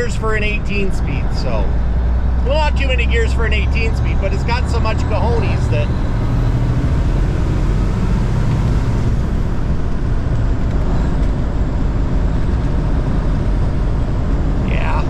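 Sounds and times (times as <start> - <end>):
road noise: 0.0 - 15.0
truck diesel engine running: 0.0 - 15.0.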